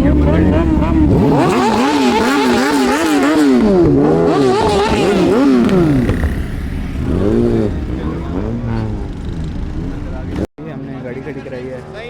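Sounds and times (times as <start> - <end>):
engine revving in throttle blips: 0.0 - 10.5.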